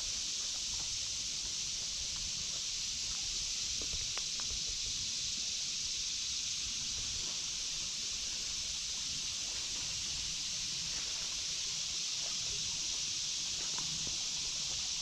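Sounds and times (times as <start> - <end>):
cicada chorus drone: 0.0 - 15.0
faint ticks: 3.1 - 5.0, 13.5 - 14.2.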